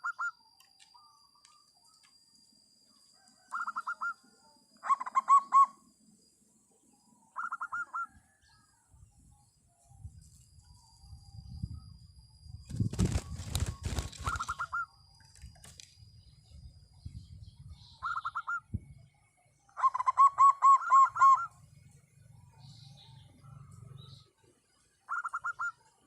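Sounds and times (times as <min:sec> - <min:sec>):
dove cooing: 0:00.0 - 0:00.3, 0:03.4 - 0:04.2, 0:04.8 - 0:05.8, 0:07.4 - 0:08.2, 0:13.0 - 0:14.9, 0:19.8 - 0:21.6, 0:25.1 - 0:25.8.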